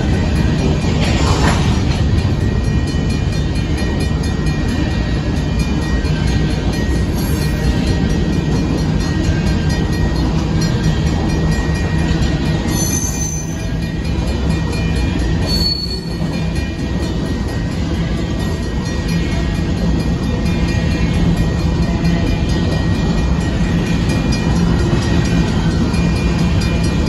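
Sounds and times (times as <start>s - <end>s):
train wheels rumbling on rails: 0.0s - 27.0s
wheel squeals: 12.7s - 13.7s, 15.4s - 16.3s.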